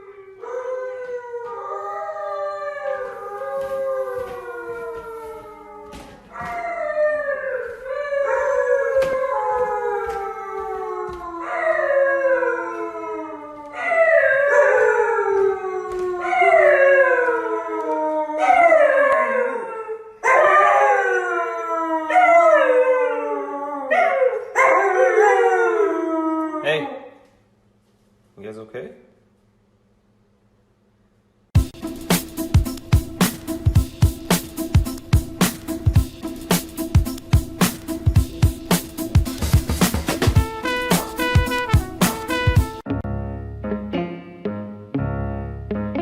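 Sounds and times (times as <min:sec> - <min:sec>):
dog howling: 0:00.0 - 0:27.1.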